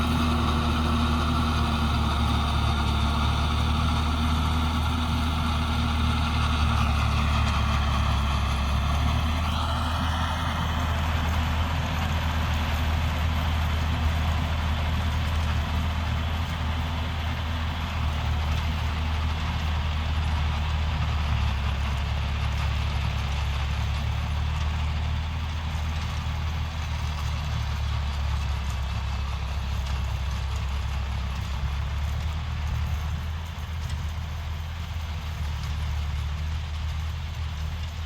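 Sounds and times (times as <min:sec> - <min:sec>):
tractor diesel engine droning: 0:00.0 - 0:38.0.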